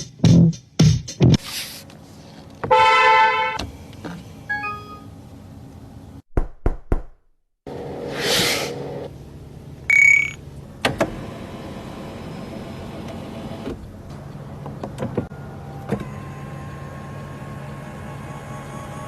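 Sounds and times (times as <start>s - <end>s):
small electric motor humming: 16.0s - 19.0s.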